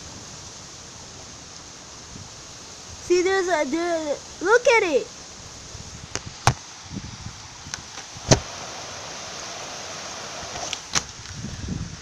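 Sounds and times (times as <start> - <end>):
heavy rain pouring: 0.0 - 12.0
sharp knocks: 8.3 - 8.5.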